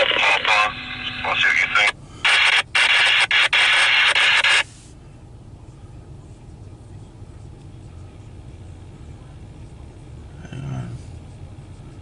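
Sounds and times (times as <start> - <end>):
radio static hiss: 0.0 - 5.0.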